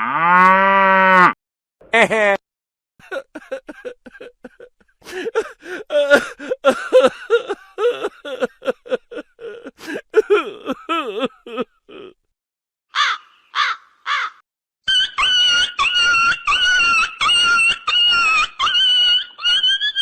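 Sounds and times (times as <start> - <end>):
cawing calls: 12.9 - 19.9.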